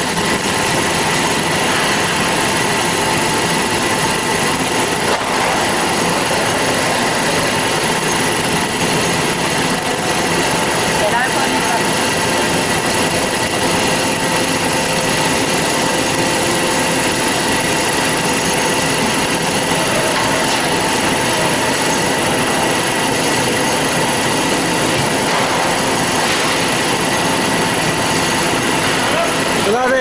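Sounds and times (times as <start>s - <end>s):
band saw running: 0.0s - 30.0s
steady whining tones: 0.0s - 30.0s.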